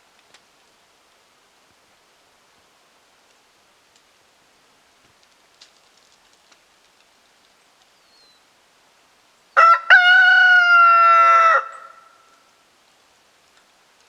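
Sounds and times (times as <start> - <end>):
faint ticks: 3.2 - 4.1, 5.0 - 8.0
rooster crowing: 9.6 - 12.4.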